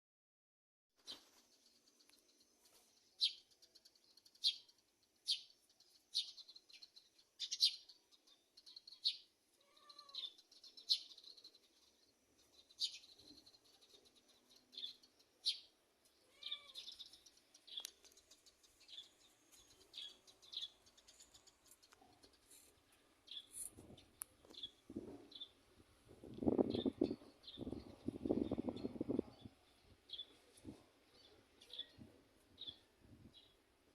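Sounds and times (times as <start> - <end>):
small bird chirping: 1.0 - 33.9
short lower bird calls: 8.6 - 11.4, 16.2 - 17.9.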